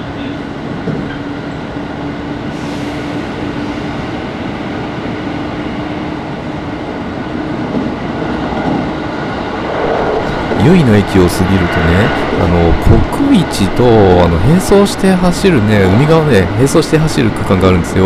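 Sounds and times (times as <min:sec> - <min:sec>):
train wheels rumbling on rails: 0:00.0 - 0:18.0
low hum: 0:09.4 - 0:13.8.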